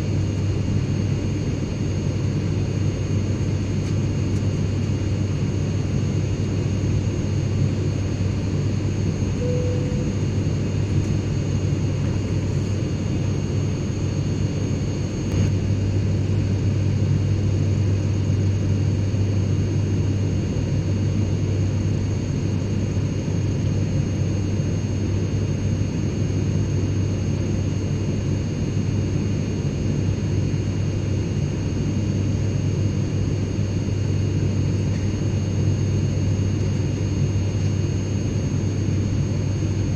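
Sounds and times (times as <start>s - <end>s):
airplane cabin drone: 0.0s - 39.9s
brief faint tone: 9.4s - 10.2s.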